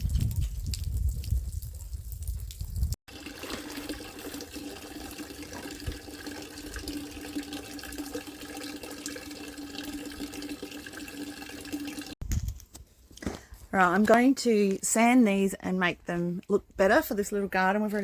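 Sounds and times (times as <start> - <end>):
water running from tap: 3.1 - 12.2.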